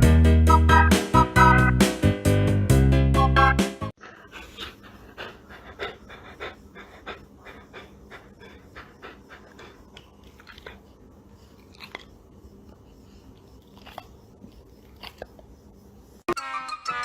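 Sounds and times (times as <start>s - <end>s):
chewing with crisp crunches: 4.3s - 15.8s.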